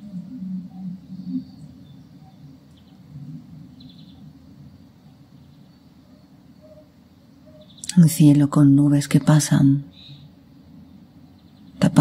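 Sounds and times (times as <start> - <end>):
bird chirps: 0.0 - 8.1, 9.2 - 12.0
low background rumble: 0.0 - 12.0.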